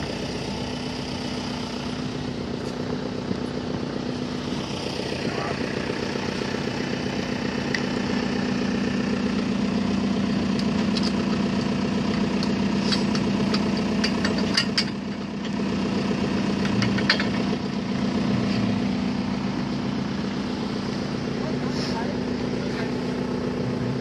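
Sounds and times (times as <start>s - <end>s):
machine engine running: 0.0s - 24.0s
sharp clicks and knocks: 10.5s - 15.6s, 16.6s - 17.6s.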